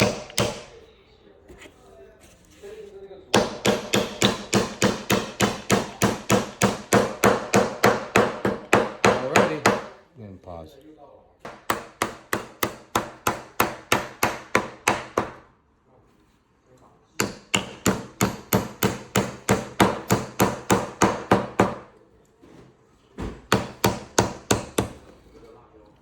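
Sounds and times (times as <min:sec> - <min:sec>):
hammer driving nail into wood: 0:00.0 - 0:00.7, 0:03.4 - 0:09.9, 0:11.5 - 0:15.4, 0:17.2 - 0:21.9, 0:23.2 - 0:25.0.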